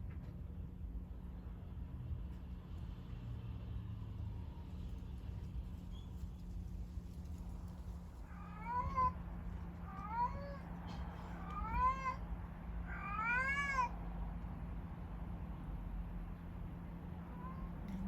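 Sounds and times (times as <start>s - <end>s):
kitten meowing: 9.9s - 10.7s, 11.4s - 12.2s, 12.9s - 13.9s.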